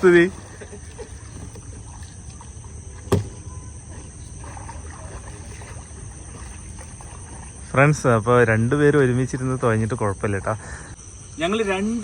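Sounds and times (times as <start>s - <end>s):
paddling water noise: 0.0s - 11.0s
crickets chirring: 0.0s - 12.0s
sharp knock: 3.1s - 3.4s.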